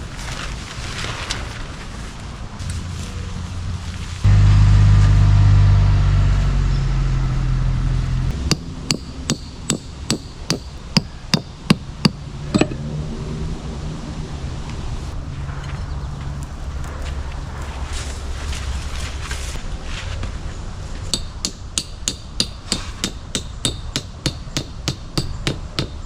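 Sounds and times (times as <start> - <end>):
loud steady low hum: 2.6 - 19.6
hammer driving tent stakes: 8.3 - 12.8, 21.0 - 26.0.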